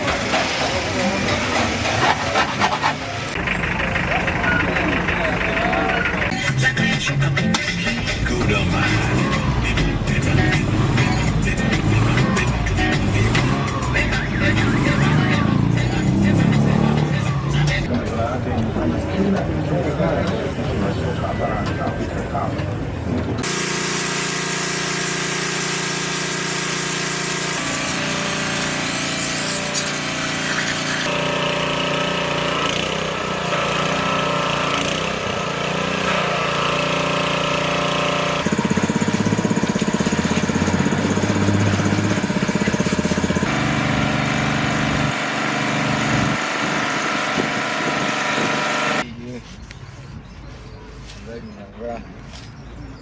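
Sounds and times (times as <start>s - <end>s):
engine running: 0.0s - 17.9s, 23.3s - 49.1s
power tools: 23.4s - 49.0s.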